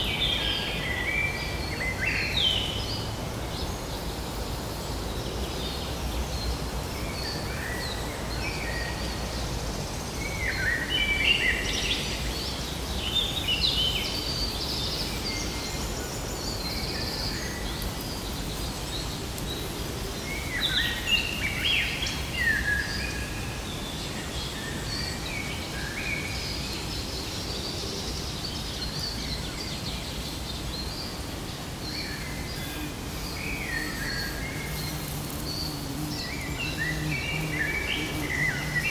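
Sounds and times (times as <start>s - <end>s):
outdoor background hiss: 0.0s - 38.9s
birds chirping: 28.6s - 38.9s.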